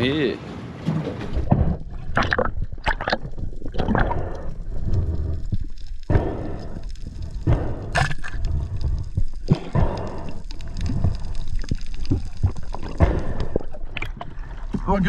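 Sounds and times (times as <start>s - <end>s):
water sloshing and gurgling: 0.7s - 15.0s.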